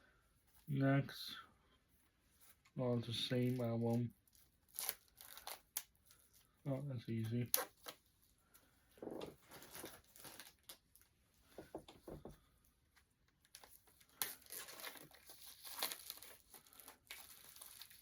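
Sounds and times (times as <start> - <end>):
plastic packaging crinkling: 3.4 - 6.5, 9.4 - 11.1, 13.4 - 18.0.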